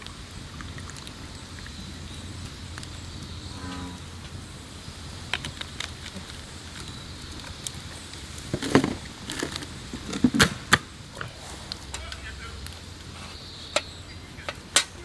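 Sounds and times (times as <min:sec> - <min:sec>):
objects clattering: 0:08.4 - 0:15.0.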